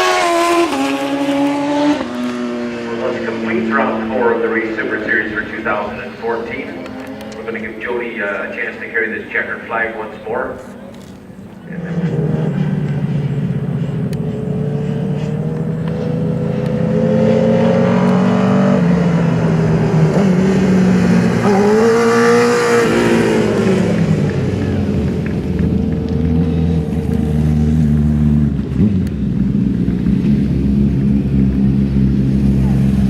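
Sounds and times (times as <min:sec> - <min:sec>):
motorcycle passing by: 0:00.0 - 0:08.6, 0:11.6 - 0:33.0
racing motorcycle engines: 0:00.0 - 0:33.0.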